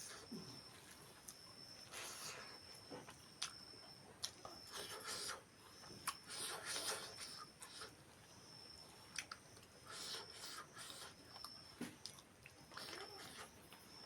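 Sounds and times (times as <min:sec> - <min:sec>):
chewing and mouth sounds: 0:04.2 - 0:08.0, 0:09.1 - 0:13.9.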